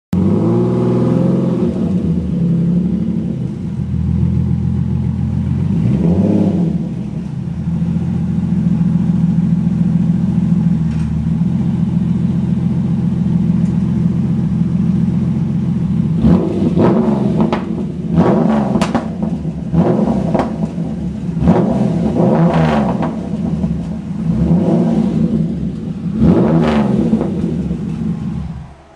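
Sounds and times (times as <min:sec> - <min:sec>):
engine revving in sharp blips: 0:00.1 - 0:03.7, 0:05.5 - 0:07.3, 0:16.1 - 0:28.9
car engine idling: 0:00.2 - 0:28.9.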